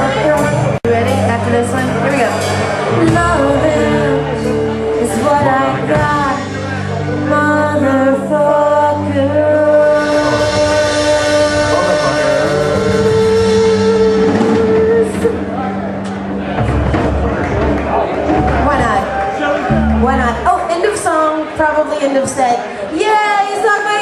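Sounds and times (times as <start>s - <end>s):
live band playing: 0.0s - 24.0s
person singing: 2.9s - 15.9s.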